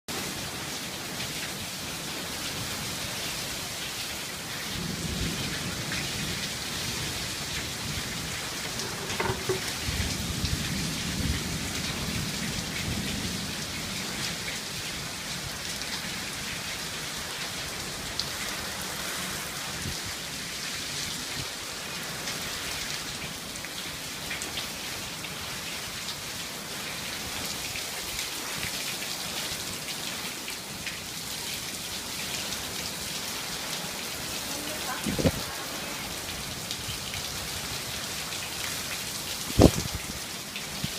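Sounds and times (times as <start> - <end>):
steady rain falling: 0.1 - 40.9
low rumble of thunder: 4.6 - 8.8, 9.7 - 14.7.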